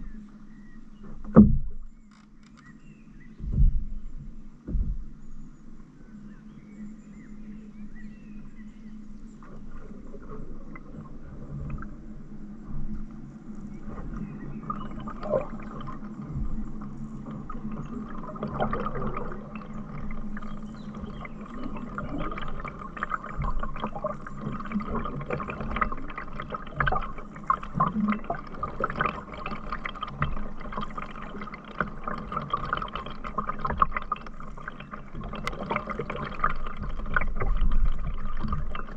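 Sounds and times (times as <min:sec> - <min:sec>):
water splashing and gurgling: 0:00.0 - 0:02.2, 0:03.2 - 0:06.0, 0:07.0 - 0:38.9.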